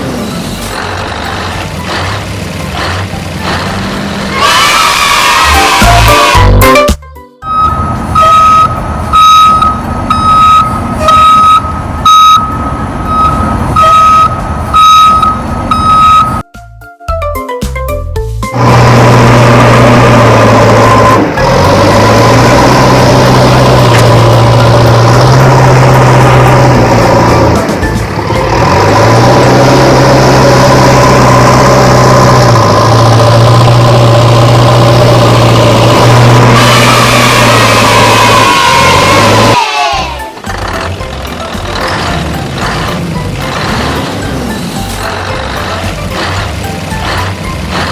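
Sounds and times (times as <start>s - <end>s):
reversing alarm beeping: 7.4s - 16.5s
low engine rumble: 18.5s - 47.9s.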